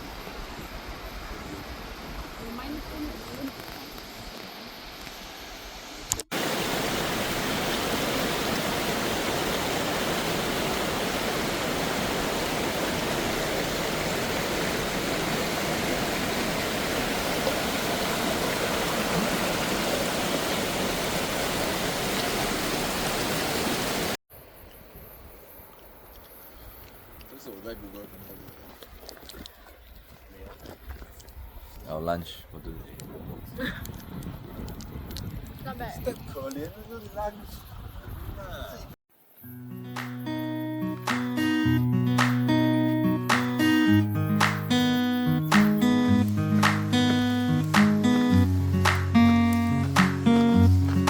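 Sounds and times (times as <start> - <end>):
rushing water: 0.0 - 24.2, 39.9 - 51.0.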